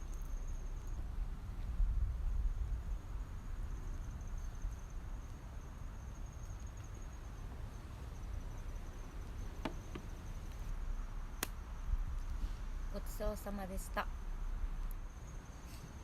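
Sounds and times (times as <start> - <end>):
high insect trill: 0.0 - 16.0
low rumble of wind: 0.0 - 16.0.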